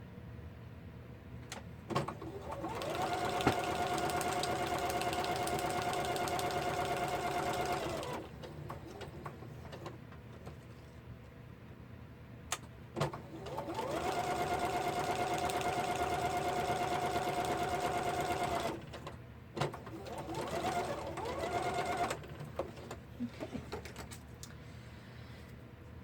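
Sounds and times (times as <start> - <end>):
sewing machine stitching: 1.9 - 10.0, 13.0 - 23.0.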